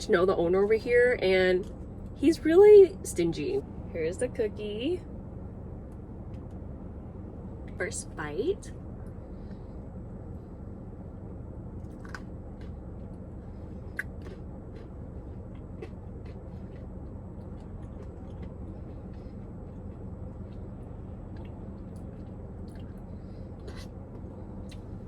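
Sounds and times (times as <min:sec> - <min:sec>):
steady low hum: 0:00.0 - 0:25.0
person chewing: 0:11.8 - 0:25.0.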